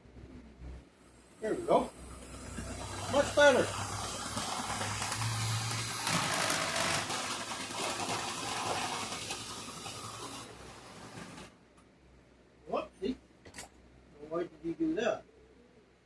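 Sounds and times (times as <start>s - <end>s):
model train motor whirring: 1.4s - 11.6s
wheels rattling over rails: 1.6s - 11.6s.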